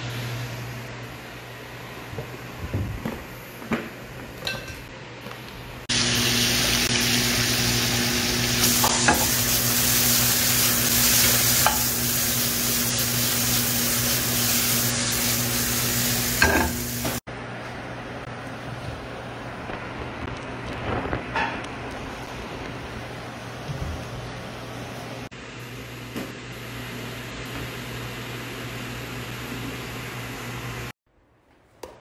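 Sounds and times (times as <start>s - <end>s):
meat sizzling in a pan: 5.9s - 17.2s.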